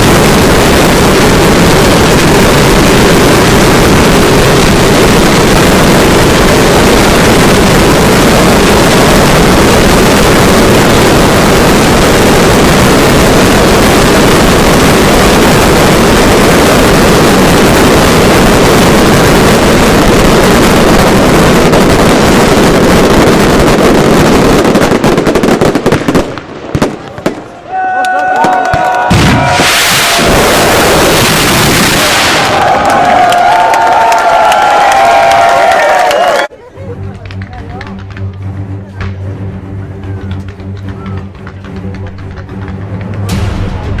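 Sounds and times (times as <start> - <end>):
fireworks bangs: 0.0 - 36.3, 40.0 - 44.0.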